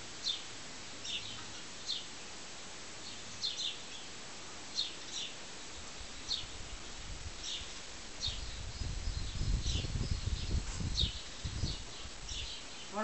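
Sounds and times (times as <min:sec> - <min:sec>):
steady background hiss: 0:00.0 - 0:13.0
small bird chirping: 0:03.0 - 0:06.8, 0:07.4 - 0:13.0.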